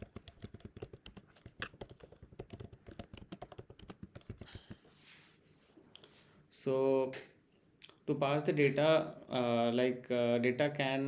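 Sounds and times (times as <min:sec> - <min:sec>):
rapid keyboard typing: 0:00.0 - 0:04.8.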